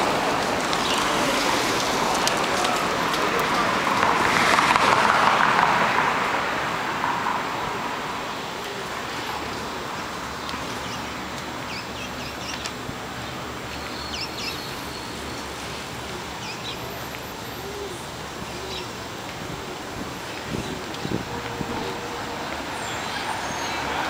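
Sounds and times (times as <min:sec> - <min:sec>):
street traffic hum: 0:00.0 - 0:24.0
small birds chirping: 0:10.4 - 0:19.0.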